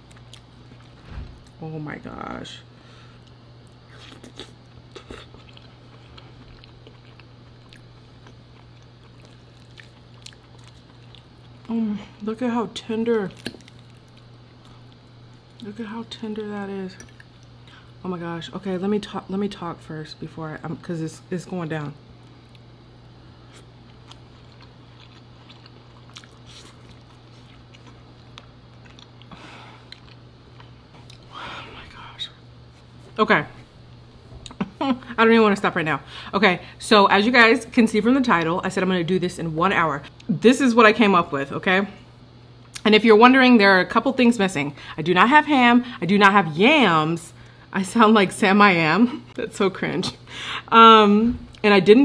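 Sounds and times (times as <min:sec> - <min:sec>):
steady low hum: 0:00.0 - 0:52.0
person chewing food: 0:03.2 - 0:11.7, 0:23.4 - 0:31.3.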